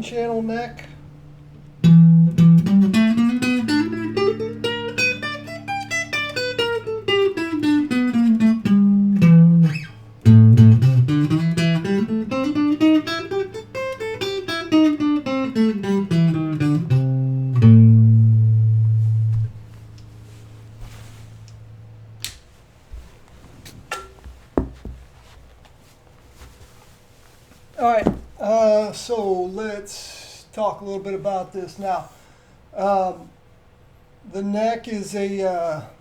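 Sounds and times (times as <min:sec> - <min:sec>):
clean electric guitar notes: 0:00.8 - 0:22.3.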